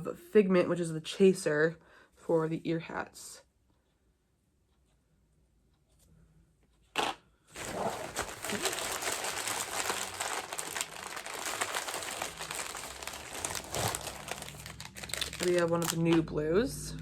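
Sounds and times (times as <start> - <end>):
packaging ripping: 7.0 - 16.1
wrapper crinkling: 7.5 - 16.3.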